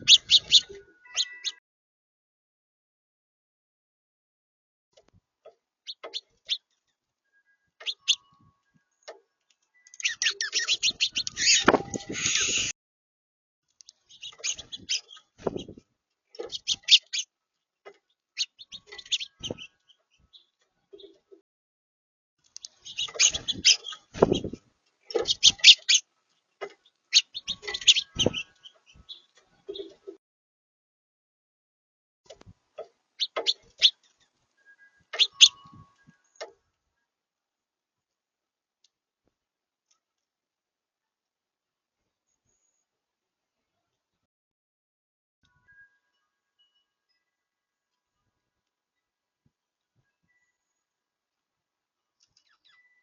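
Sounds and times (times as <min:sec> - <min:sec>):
songbirds chirping: 0:00.0 - 0:01.6, 0:05.0 - 0:12.7, 0:13.7 - 0:21.4, 0:22.4 - 0:30.2, 0:32.3 - 0:36.7, 0:52.0 - 0:53.0.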